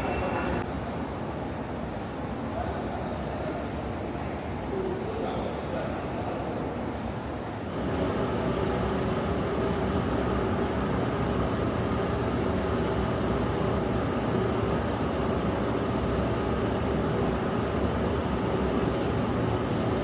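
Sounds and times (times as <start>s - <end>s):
underground train humming: 0.0s - 1.3s, 7.8s - 20.0s.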